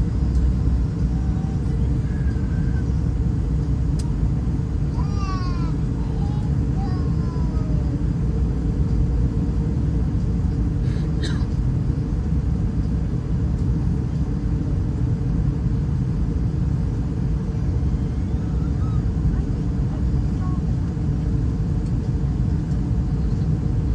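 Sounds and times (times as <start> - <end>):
airplane engines in flight: 0.0 - 23.9.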